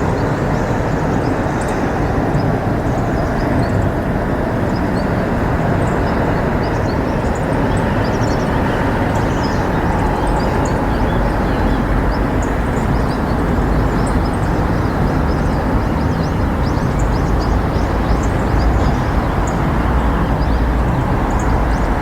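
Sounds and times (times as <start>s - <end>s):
small birds chirping: 4.6s - 22.0s.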